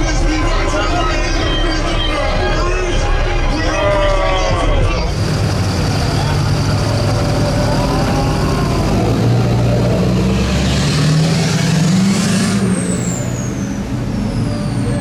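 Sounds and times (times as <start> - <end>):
truck engine revving: 5.1 - 15.0.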